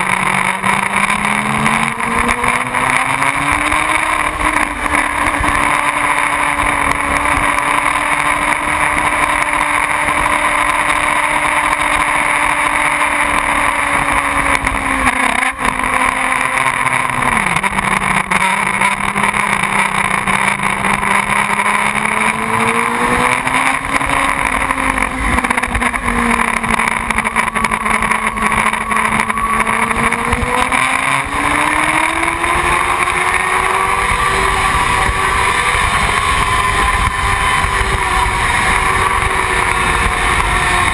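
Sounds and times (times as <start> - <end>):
motorcycle engine running: 0.0 - 40.9
wind on microphone: 32.1 - 40.9.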